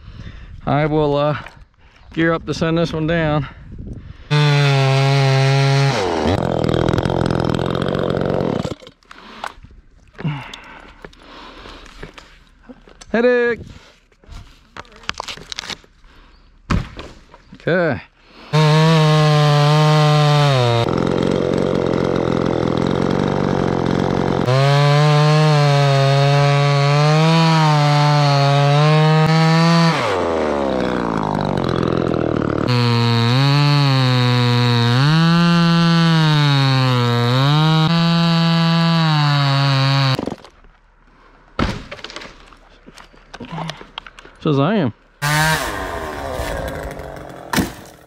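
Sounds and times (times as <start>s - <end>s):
chainsaw cutting wood: 4.3s - 9.6s, 18.5s - 40.6s, 45.2s - 48.0s.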